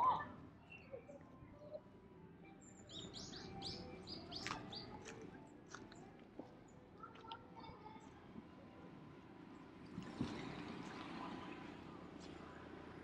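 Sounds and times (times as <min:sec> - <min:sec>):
songbird calling: 0:02.8 - 0:05.0.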